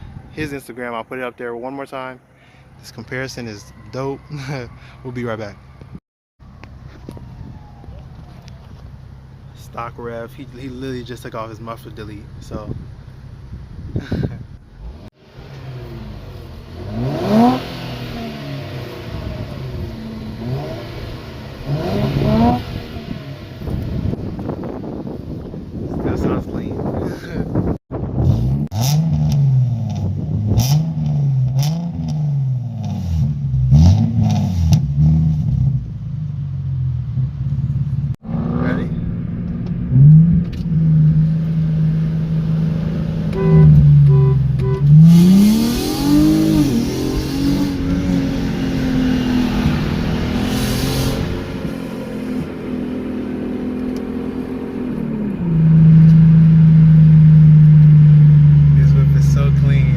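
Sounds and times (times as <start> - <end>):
exhaust cracks: 6.4 - 59.9
car engine revving: 14.7 - 25.6, 28.1 - 59.9
car engine running: 51.3 - 59.9.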